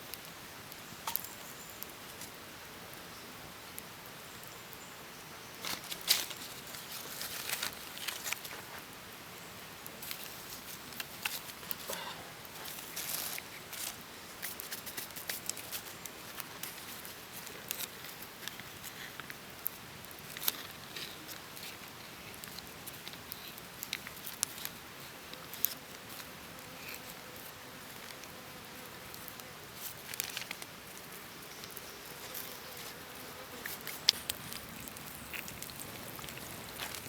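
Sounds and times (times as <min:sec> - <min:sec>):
steady faint hiss: 0:00.0 - 0:37.0
soft rustling: 0:29.2 - 0:37.0.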